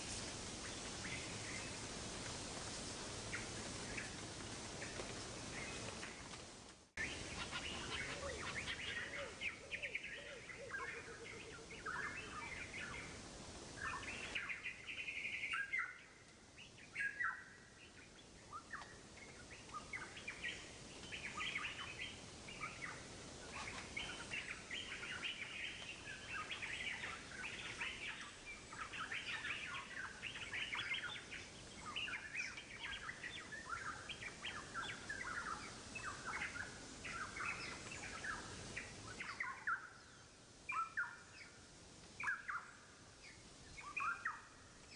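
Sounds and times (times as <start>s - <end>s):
birds chirping: 7.0s - 13.2s.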